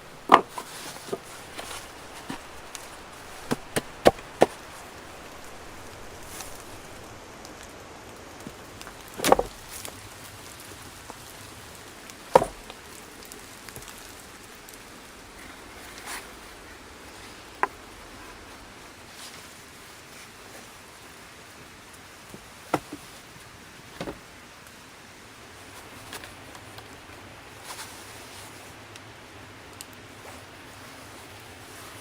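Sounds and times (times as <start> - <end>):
steady outdoor hiss: 0.0 - 32.0
wood knocking against wood: 0.1 - 7.0, 8.8 - 9.7, 12.3 - 12.7, 24.0 - 24.2.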